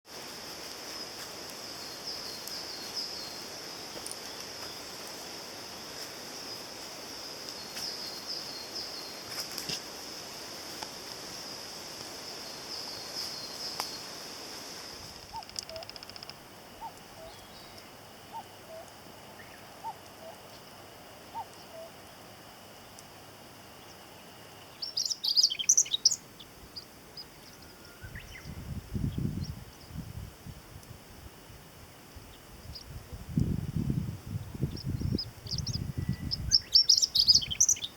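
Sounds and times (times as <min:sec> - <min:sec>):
steady high hiss: 0:00.1 - 0:37.9
birds singing: 0:15.3 - 0:20.6, 0:21.3 - 0:22.0, 0:23.8 - 0:30.0, 0:34.6 - 0:37.9.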